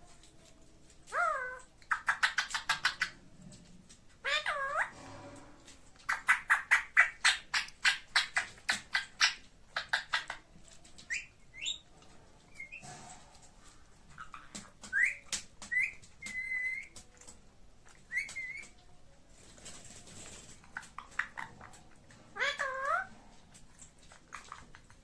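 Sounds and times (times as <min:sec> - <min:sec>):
parakeet chirps: 0:01.1 - 0:03.2, 0:06.1 - 0:10.4, 0:14.2 - 0:17.0, 0:17.9 - 0:18.8.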